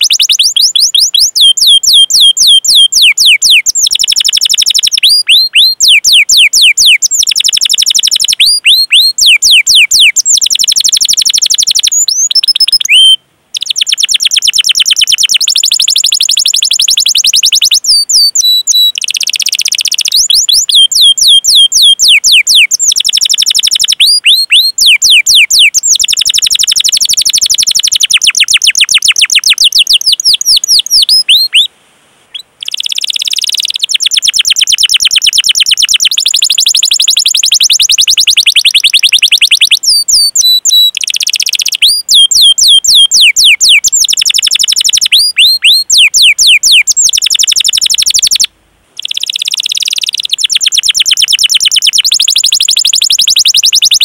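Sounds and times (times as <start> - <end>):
canary singing trills: 0.0 - 31.7, 32.3 - 54.0.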